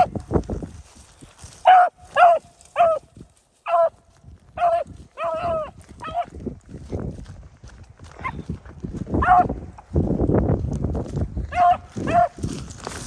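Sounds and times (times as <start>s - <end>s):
wind rumbling on microphone: 0.0s - 13.0s
dog yipping: 9.2s - 9.5s.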